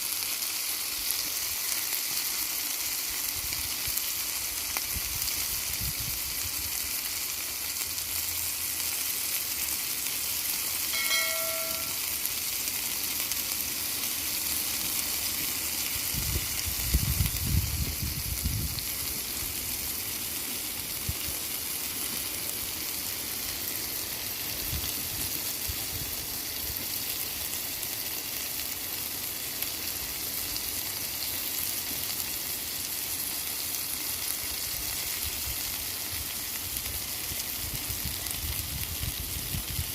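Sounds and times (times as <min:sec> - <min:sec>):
food sizzling in a pan: 0:00.0 - 0:39.9
short ringing tone: 0:10.9 - 0:12.1.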